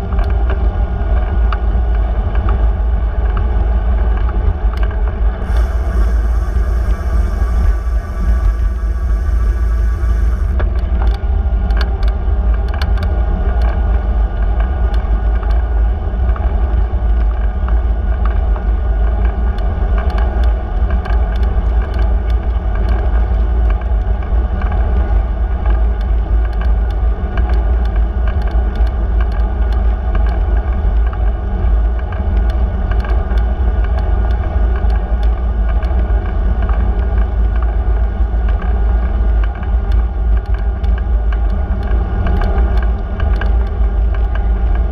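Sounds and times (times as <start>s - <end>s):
wind and road noise: 0.0s - 44.9s
bicycle clicks and rattles: 25.5s - 44.9s.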